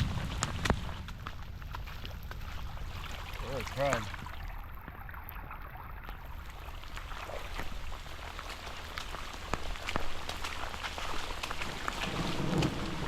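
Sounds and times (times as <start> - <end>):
sharp raindrop strikes: 0.0 - 4.1, 7.9 - 13.0
rain falling: 0.0 - 4.8, 6.3 - 13.0.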